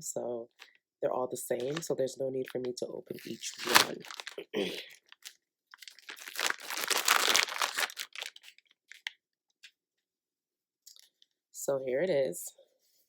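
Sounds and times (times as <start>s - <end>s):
packaging tearing and crinkling: 3.1s - 4.4s, 5.0s - 9.1s
packaging crackles: 3.2s - 9.1s.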